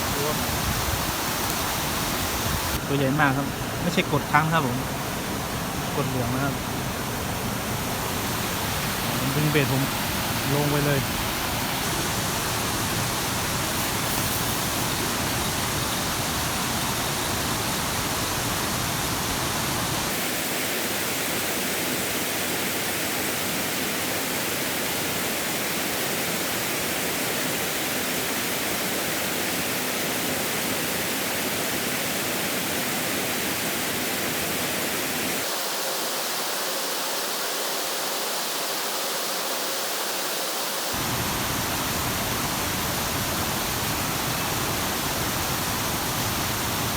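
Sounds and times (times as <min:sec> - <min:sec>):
river water rushing: 0:00.0 - 0:21.2, 0:38.0 - 0:46.9.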